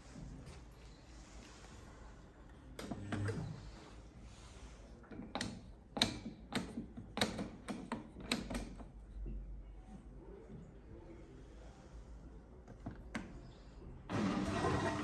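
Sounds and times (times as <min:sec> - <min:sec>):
sharp clicks and knocks: 0:05.1 - 0:09.0.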